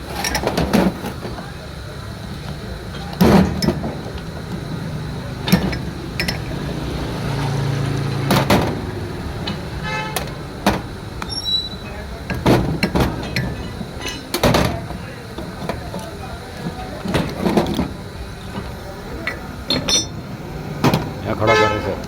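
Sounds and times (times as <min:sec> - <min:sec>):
vehicle engine running: 0:00.0 - 0:22.0
sharp knocks and clanks: 0:02.9 - 0:04.5, 0:05.4 - 0:06.7, 0:07.4 - 0:11.0, 0:12.2 - 0:20.2.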